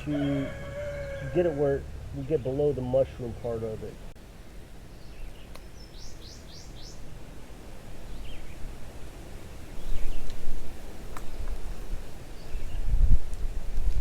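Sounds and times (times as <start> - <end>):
bird calling: 0.0 - 2.7.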